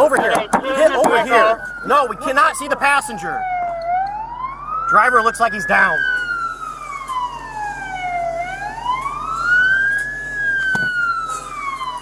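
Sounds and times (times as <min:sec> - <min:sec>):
police siren wailing: 0:00.0 - 0:12.0
short knock: 0:10.8 - 0:11.0.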